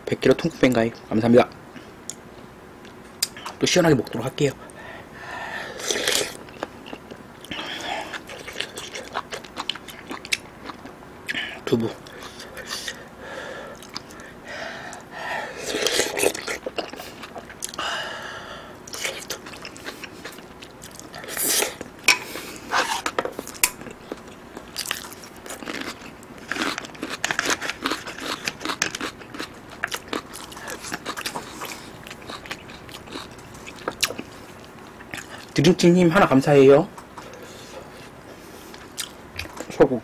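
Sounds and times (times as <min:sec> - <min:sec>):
chewing food: 0:05.8 - 0:13.1, 0:13.7 - 0:17.8, 0:18.8 - 0:35.6, 0:37.0 - 0:39.8.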